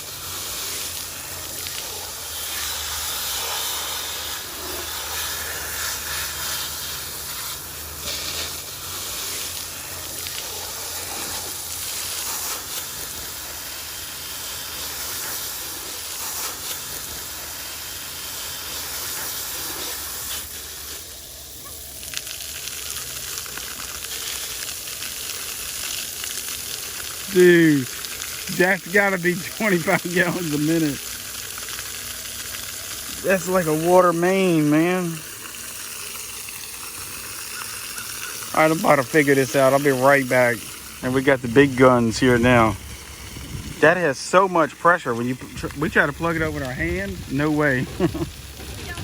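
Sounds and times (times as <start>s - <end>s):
water gushing under pressure: 0.0s - 49.0s.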